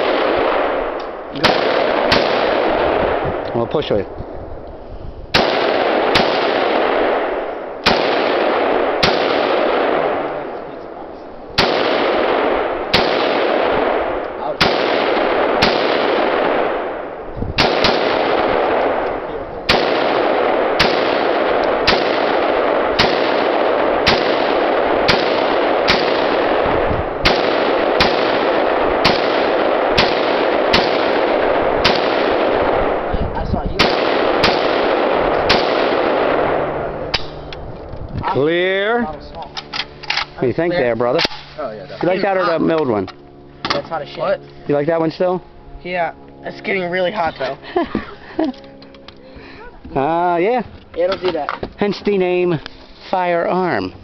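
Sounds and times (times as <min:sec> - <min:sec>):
rifle shots echoing: 0:00.0 - 0:04.1, 0:05.3 - 0:37.6.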